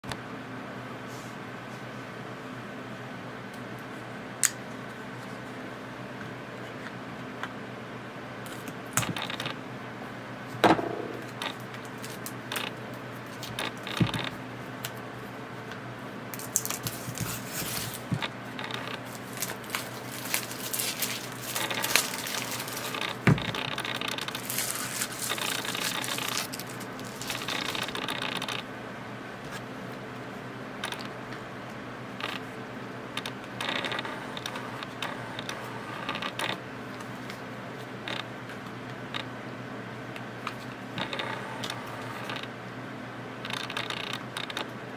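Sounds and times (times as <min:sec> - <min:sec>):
steady low hum: 0:00.1 - 0:44.9
packaging scraping and rustling: 0:11.2 - 0:14.4, 0:16.4 - 0:28.6.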